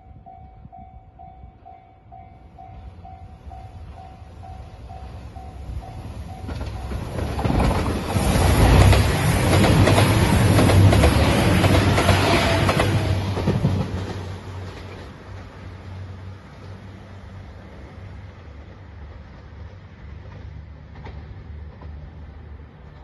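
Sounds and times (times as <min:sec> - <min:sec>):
diesel train engines rumbling: 0:00.0 - 0:23.0
train wheels clattering over rail joints: 0:06.4 - 0:15.5.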